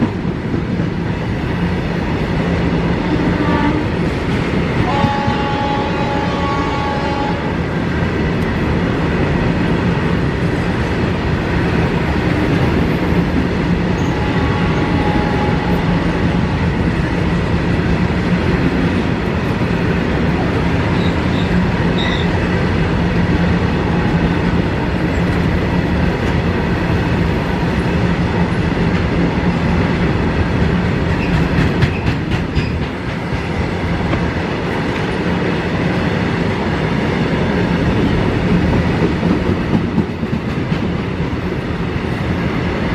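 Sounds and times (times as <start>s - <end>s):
freight train wheels clattering on rails: 0.0s - 42.9s
locomotive horn: 3.0s - 3.9s, 4.8s - 7.6s, 14.0s - 16.4s.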